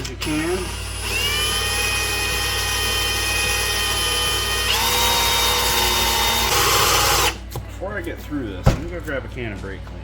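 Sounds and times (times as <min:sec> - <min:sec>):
electric drill boring into steel: 0:00.0 - 0:07.4.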